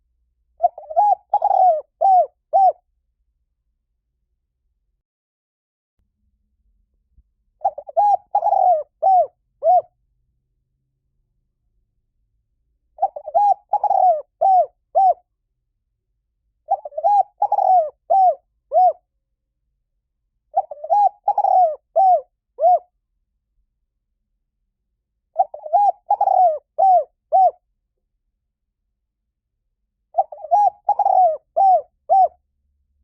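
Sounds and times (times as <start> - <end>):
dove cooing: 0.6 - 2.8, 7.6 - 9.9, 13.0 - 15.2, 16.7 - 19.0, 20.5 - 22.9, 25.4 - 27.6, 30.1 - 32.4.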